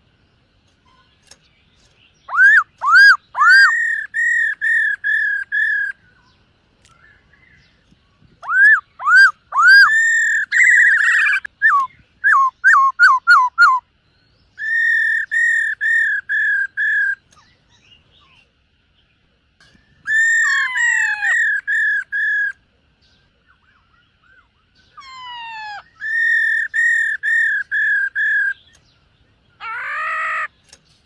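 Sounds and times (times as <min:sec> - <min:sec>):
bird singing whistled phrases: 0:02.3 - 0:06.3, 0:08.4 - 0:13.9, 0:14.6 - 0:18.4, 0:23.4 - 0:28.8.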